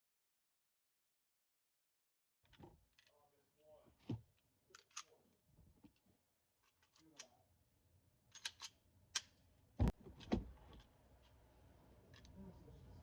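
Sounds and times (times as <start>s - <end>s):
pistol mechanism clicks: 8.3s - 9.4s.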